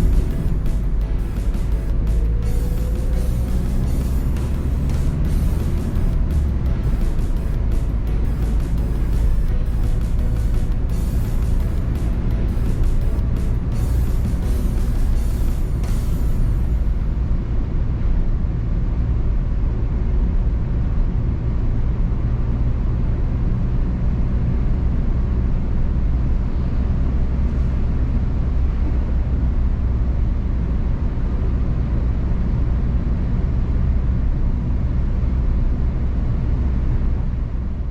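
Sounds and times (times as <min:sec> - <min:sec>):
tyre and road noise: 0:00.0 - 0:18.6
car engine running: 0:00.0 - 0:22.2.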